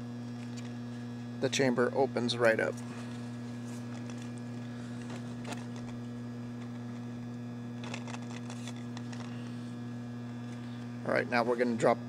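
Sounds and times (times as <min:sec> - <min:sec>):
electrical mains hum: 0:00.0 - 0:12.0
plastic parts clicking: 0:07.8 - 0:09.4.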